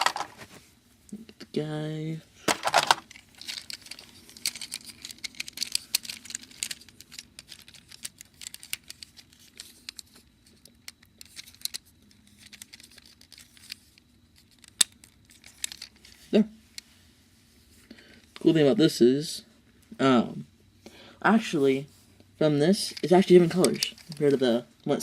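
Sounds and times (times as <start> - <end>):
plastic parts clicking and rattling: 0.0 - 0.4, 2.5 - 16.4, 22.7 - 24.6.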